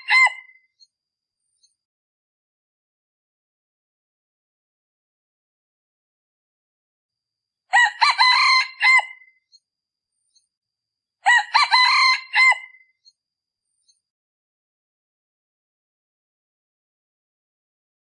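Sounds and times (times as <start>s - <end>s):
junglefowl crowing: 0.0s - 0.6s, 7.7s - 9.3s, 11.2s - 12.8s.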